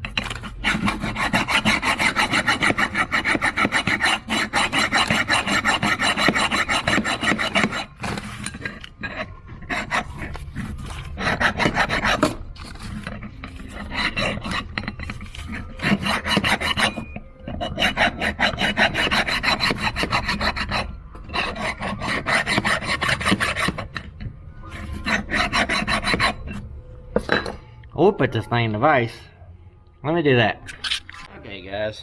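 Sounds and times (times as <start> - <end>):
hand file rasping on metal: 0.2 - 12.4, 13.0 - 24.0, 24.7 - 26.6.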